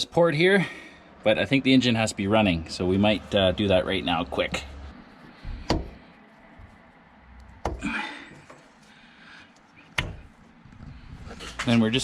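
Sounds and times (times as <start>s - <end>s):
sharp knocks of hard objects: 5.4s - 6.1s, 7.5s - 8.0s.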